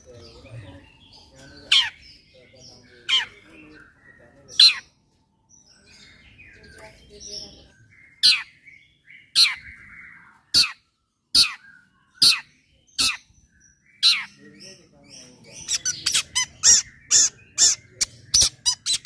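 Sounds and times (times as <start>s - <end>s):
soft chattering twitters: 14.0s - 19.0s.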